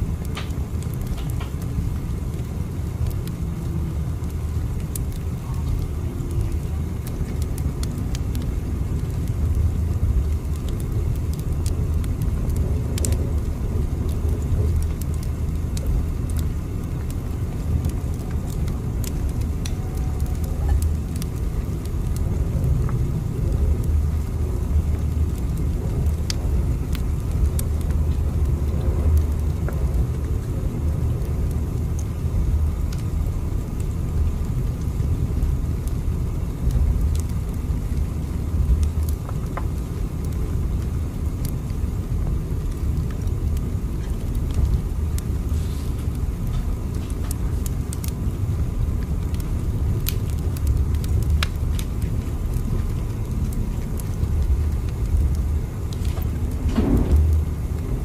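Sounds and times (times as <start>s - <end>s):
train rumbling: 56.1s - 58.0s.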